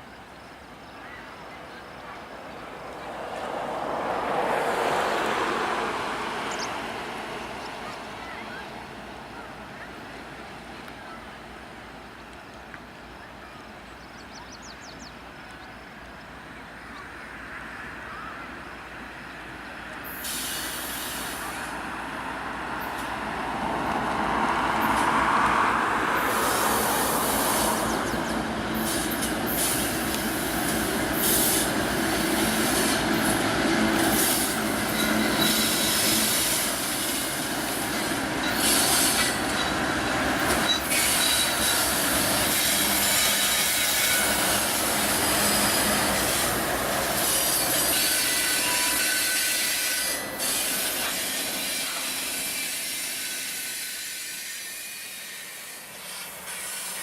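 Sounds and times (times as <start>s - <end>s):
freight train rumbling and clattering: 19.4s - 57.0s
train wheel squeal: 26.3s - 57.0s.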